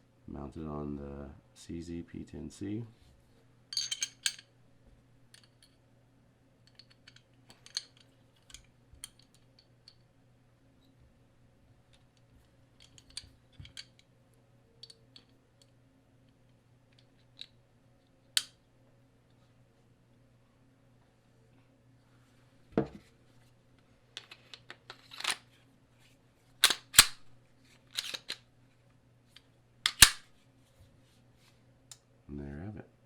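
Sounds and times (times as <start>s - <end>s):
faint steady hum: 0.0s - 33.0s
pistol being handled clicks: 26.6s - 27.3s, 29.9s - 30.2s.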